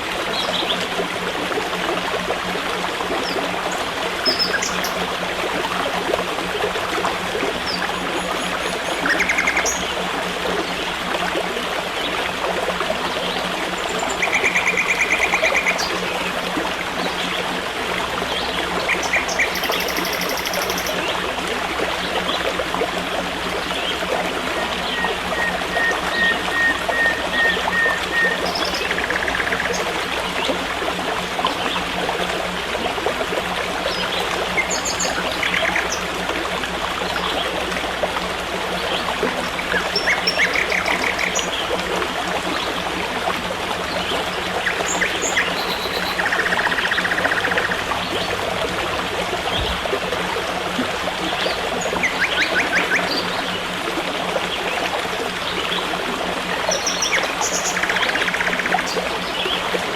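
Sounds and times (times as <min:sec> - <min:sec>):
stream trickling: 0:00.0 - 0:59.9
birds chirping: 0:07.6 - 0:09.9, 0:13.8 - 0:16.0, 0:18.9 - 0:21.1, 0:24.8 - 0:29.9, 0:44.6 - 0:48.2.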